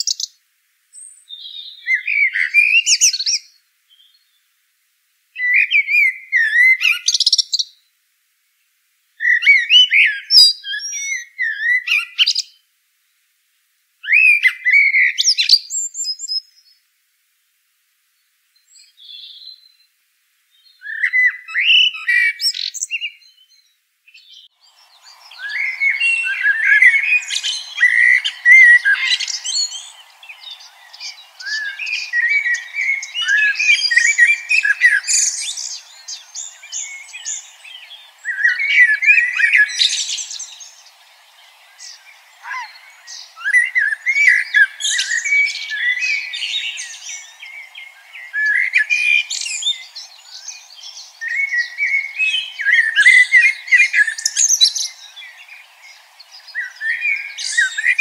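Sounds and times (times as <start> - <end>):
songbird warbling and chirping: 20.6 - 58.0.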